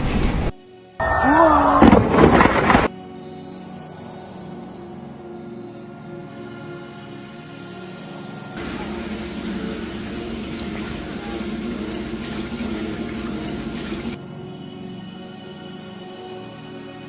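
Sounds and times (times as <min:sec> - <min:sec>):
background music: 0:02.9 - 0:17.0
loud rushing water-like noise: 0:08.6 - 0:14.2.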